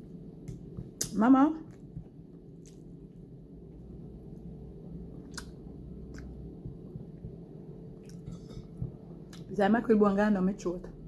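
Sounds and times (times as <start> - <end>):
low background hum: 0.0 - 11.0
person chewing: 1.7 - 3.2, 5.1 - 6.7, 8.0 - 9.5.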